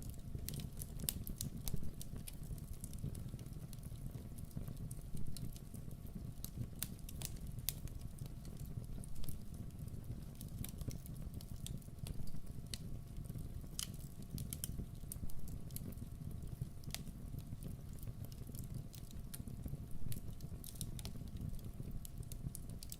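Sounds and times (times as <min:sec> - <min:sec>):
campfire crackling and popping: 0:00.0 - 0:22.9.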